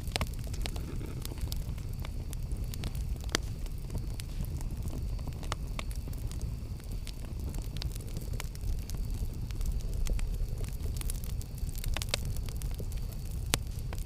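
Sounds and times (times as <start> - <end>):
crackles and pops of burning wood: 0.0 - 14.0
low rumble of flames: 0.0 - 14.0.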